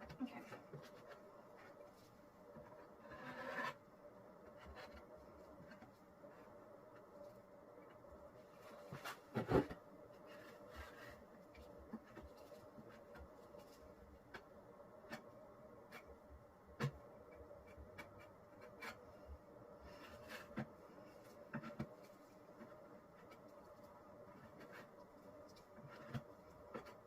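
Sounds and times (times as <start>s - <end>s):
faint steady hum: 0.0s - 27.0s
tool scraping cement on tabletop: 2.8s - 3.8s.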